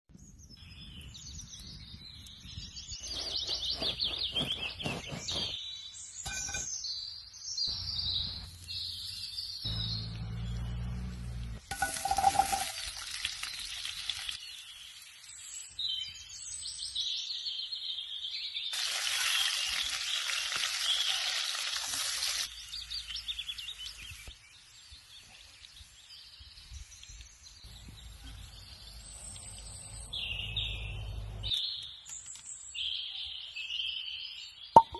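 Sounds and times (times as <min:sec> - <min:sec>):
birds singing and calling: 0:00.2 - 0:12.3, 0:22.4 - 0:34.9.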